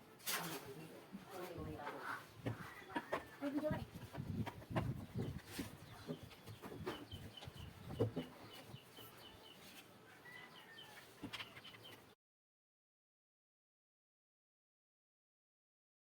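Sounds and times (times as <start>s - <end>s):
bird chirping: 4.8s - 12.2s.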